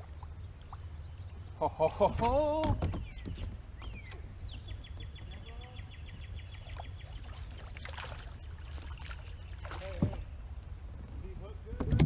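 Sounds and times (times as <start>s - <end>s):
steady low rumble: 10.2s - 11.9s.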